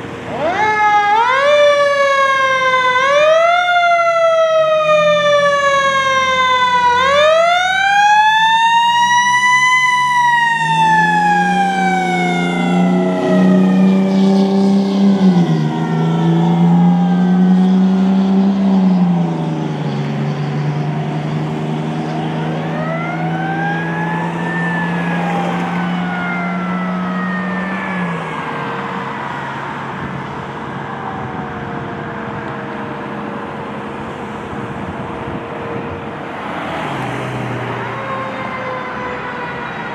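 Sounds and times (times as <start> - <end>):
fire truck siren wailing: 0.0 - 39.9
faint second siren wail: 0.1 - 39.9
heavy truck engine revving: 10.3 - 38.2.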